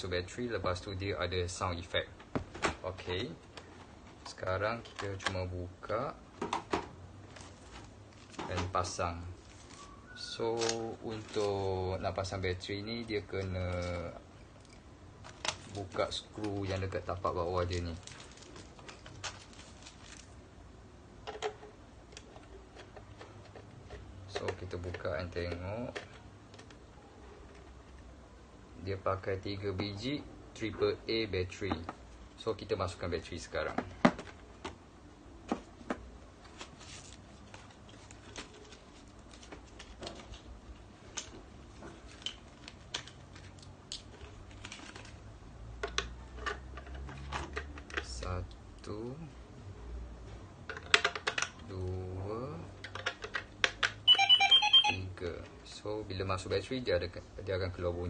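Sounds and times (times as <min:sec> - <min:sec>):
batteries clicking in plastic compartment: 0:52.8 - 0:54.0.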